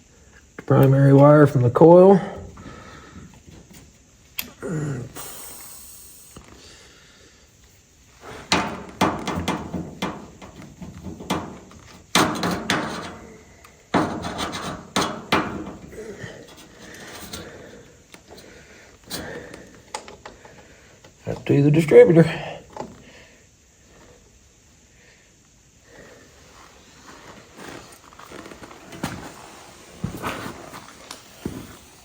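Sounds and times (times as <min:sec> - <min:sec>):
hand tool clicks and knocks: 0:08.5 - 0:13.1.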